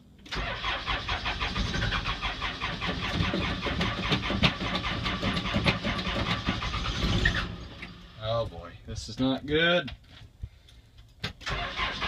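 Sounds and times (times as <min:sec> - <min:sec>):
diesel engine cranking: 0:00.2 - 0:08.2, 0:11.4 - 0:12.0.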